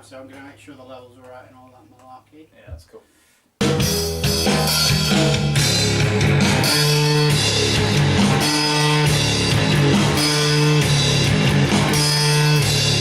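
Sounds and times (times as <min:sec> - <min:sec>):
distorted electric guitar: 0:03.6 - 0:13.0
heavy rock band playing: 0:03.6 - 0:13.0.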